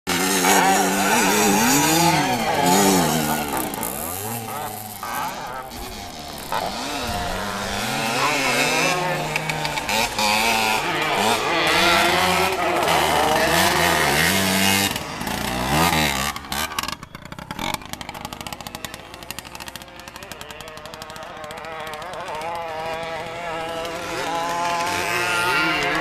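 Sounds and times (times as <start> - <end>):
dirt bikes revving past: 0.1 - 26.0.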